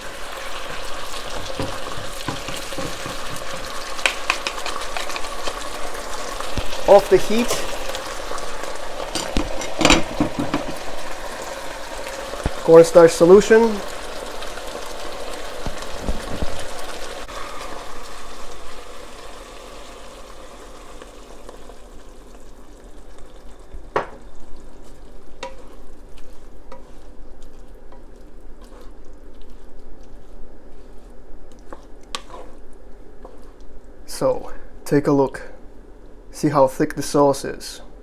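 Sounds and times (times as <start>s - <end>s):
sauce sizzling in a wok: 0.0s - 34.9s
spatula knocking and scraping wok: 0.2s - 11.2s, 23.8s - 33.8s.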